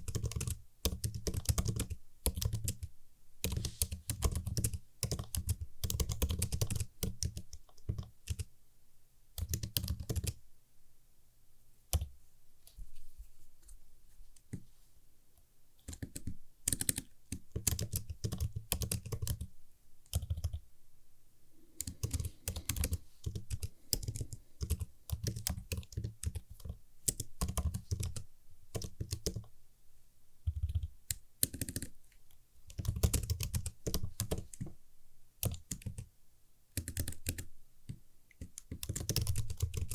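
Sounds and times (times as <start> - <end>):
keyboard typing: 0.0 - 8.5, 9.4 - 10.4, 15.8 - 20.6, 21.8 - 29.5, 30.4 - 32.0, 32.7 - 34.7, 35.4 - 36.1, 36.8 - 39.9.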